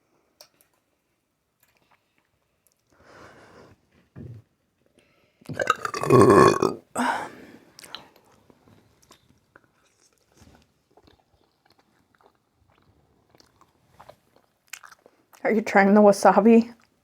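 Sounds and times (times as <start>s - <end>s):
person chewing food: 5.5s - 6.8s, 7.8s - 15.4s
person burping: 5.5s - 7.3s.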